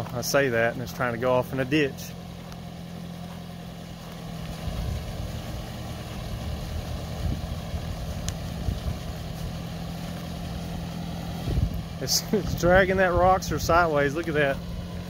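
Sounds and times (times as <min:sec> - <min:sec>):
vehicle engine under load: 0:00.0 - 0:15.0
low knocks and bumps: 0:02.2 - 0:10.7.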